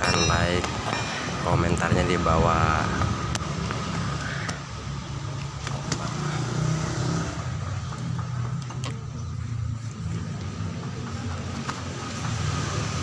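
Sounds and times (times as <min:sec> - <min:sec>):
engine idling with low hum: 0:07.5 - 0:12.3.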